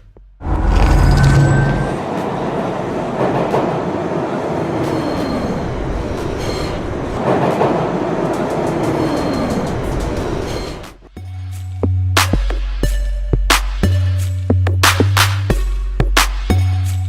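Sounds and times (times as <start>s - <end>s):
high squeal: 0.4s - 2.1s, 4.9s - 7.2s, 9.0s - 10.9s
rail clacks: 0.4s - 11.0s
subway train rumbling: 0.4s - 11.0s.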